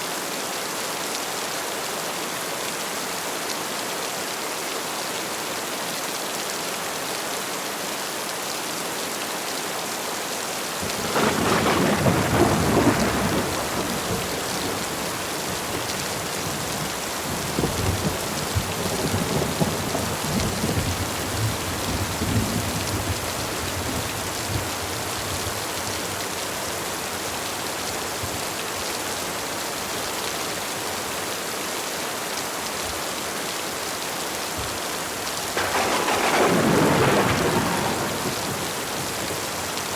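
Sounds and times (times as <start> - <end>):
heavy rain falling: 0.1 - 39.9
thunder crack and rumble: 10.8 - 24.8, 35.5 - 39.9.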